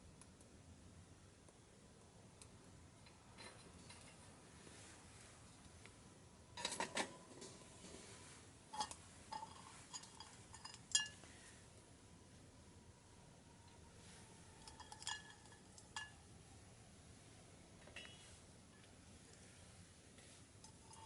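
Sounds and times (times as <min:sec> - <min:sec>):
metal camping gear clinking: 0:08.7 - 0:11.4, 0:14.6 - 0:16.2, 0:20.6 - 0:21.0.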